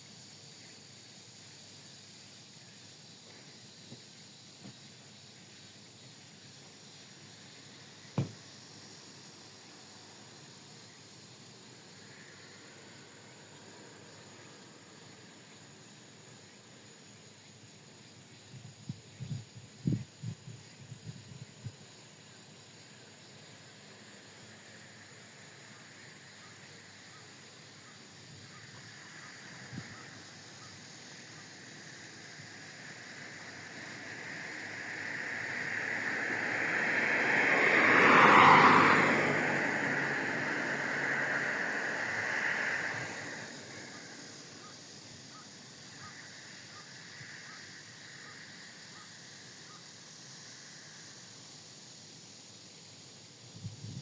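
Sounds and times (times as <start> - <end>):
low knocks: 8.2 - 8.4
airplane passing overhead: 27.8 - 44.9.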